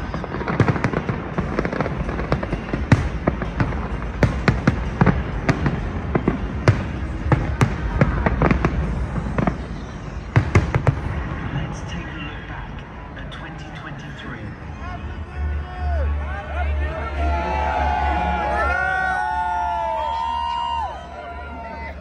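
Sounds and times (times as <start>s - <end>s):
fireworks bangs and pops: 0.0s - 12.4s.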